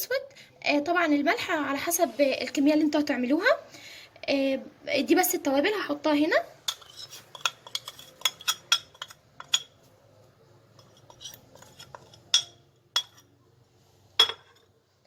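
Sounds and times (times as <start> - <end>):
spoon clinking against bowl: 6.7 - 9.8, 10.8 - 13.3.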